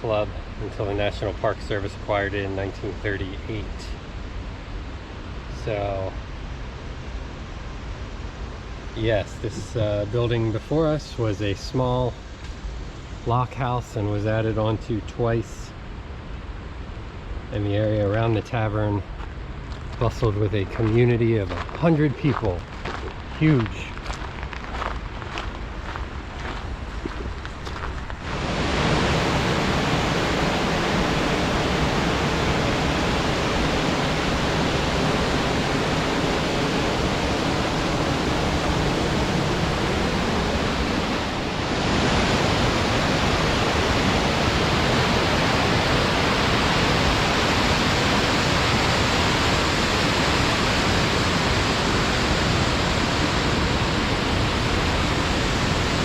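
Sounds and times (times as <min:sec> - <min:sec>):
water rushing over rapids: 0:27.2 - 0:56.0.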